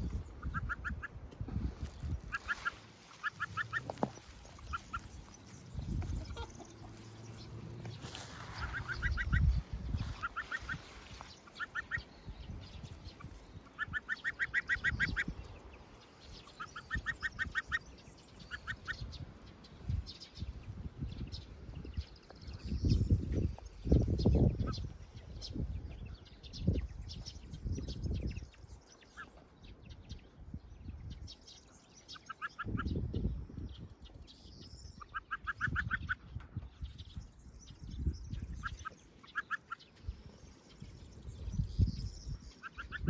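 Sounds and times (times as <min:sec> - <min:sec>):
gosling calling: 0:00.0 - 0:01.2, 0:02.1 - 0:07.6, 0:08.4 - 0:15.4, 0:16.3 - 0:19.1, 0:38.5 - 0:39.9, 0:42.5 - 0:43.0.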